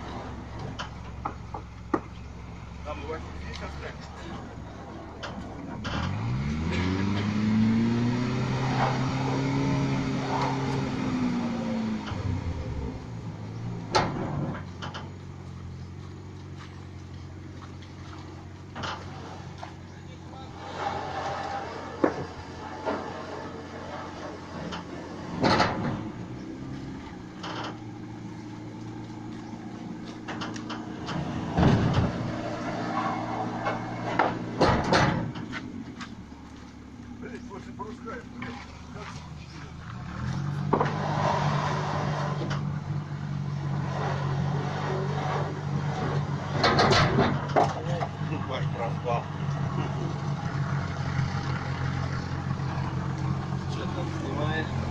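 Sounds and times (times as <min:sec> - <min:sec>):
engine revving: 0:02.5 - 0:15.0, 0:18.2 - 0:54.9
loud clunks: 0:13.8 - 0:15.1, 0:20.6 - 0:26.3, 0:30.1 - 0:35.8, 0:45.3 - 0:48.2.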